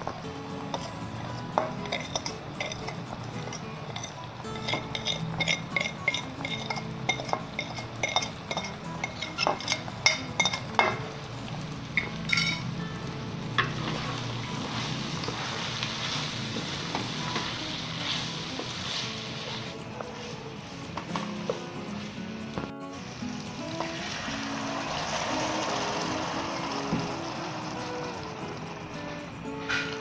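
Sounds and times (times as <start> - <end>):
glass bowl clinking on steel pan: 1.6 - 11.0, 12.0 - 12.7
meat sizzling in oil: 13.7 - 19.8.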